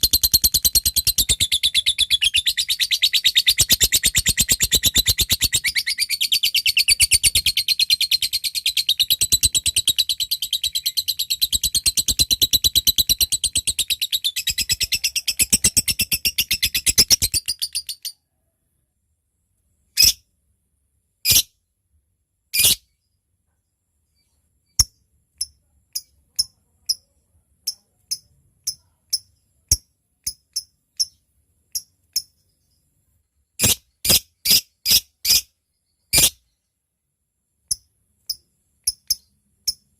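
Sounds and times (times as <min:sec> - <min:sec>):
lovebird chattering trill: 0:00.0 - 0:18.2
lovebird sharp chirps: 0:00.0 - 0:18.2, 0:20.0 - 0:20.2, 0:21.2 - 0:21.6, 0:22.5 - 0:23.0, 0:24.2 - 0:32.8, 0:33.6 - 0:36.6, 0:37.7 - 0:39.9.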